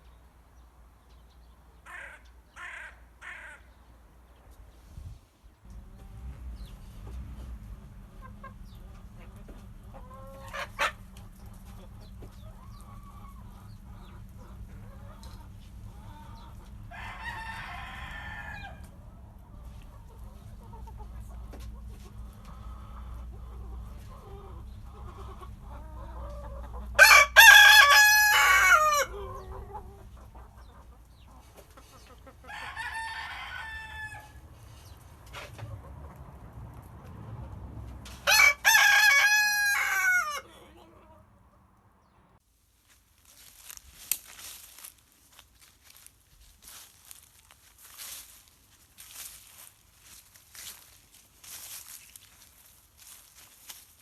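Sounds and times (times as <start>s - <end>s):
roosters crowing: 5.7s - 21.4s, 22.1s - 30.7s, 32.2s - 34.7s, 38.1s - 41.2s.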